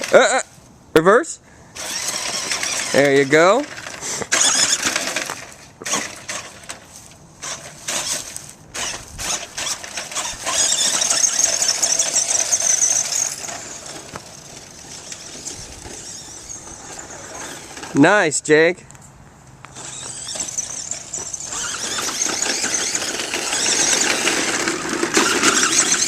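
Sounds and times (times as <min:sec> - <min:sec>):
rc truck motor whining: 0:01.7 - 0:18.0, 0:19.6 - 0:26.0
crackly throttle blips: 0:18.9 - 0:26.0.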